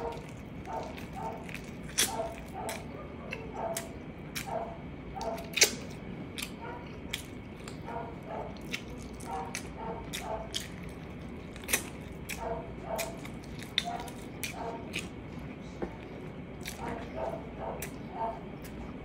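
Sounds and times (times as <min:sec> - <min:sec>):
person chewing food: 0:00.0 - 0:19.0
wet lip smacks: 0:01.5 - 0:04.5, 0:05.2 - 0:07.8.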